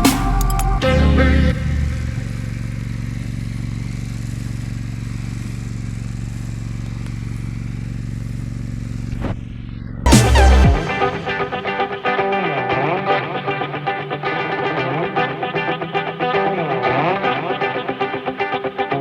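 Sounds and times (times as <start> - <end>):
music: 0.0 - 1.7, 10.1 - 19.0
tractor engine running: 1.6 - 9.1.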